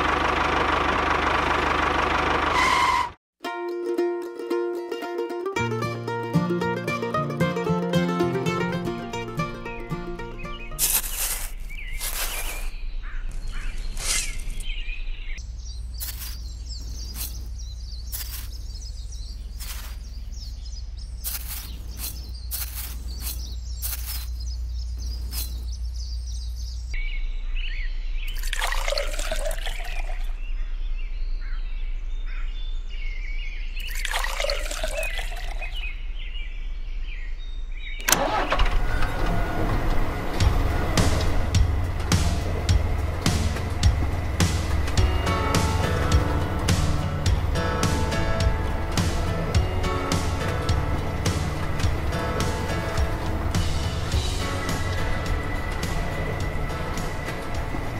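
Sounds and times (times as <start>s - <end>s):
music: 3.4s - 10.8s, 38.2s - 57.9s
birds chirping: 8.2s - 57.9s
steady low hum: 40.0s - 57.9s.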